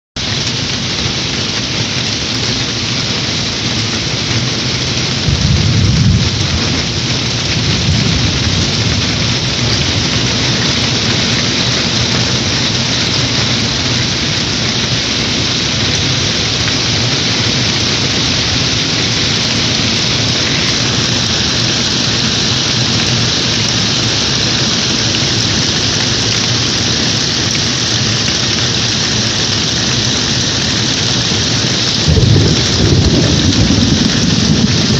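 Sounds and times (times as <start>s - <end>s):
heavy rain falling: 0.2s - 34.9s
low rumble of thunder: 5.1s - 13.9s, 31.8s - 34.9s.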